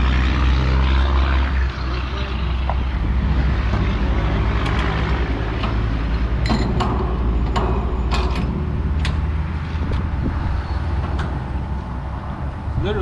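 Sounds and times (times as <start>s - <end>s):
engine droning: 0.0s - 13.0s
metal hose couplings clanking: 3.7s - 12.0s.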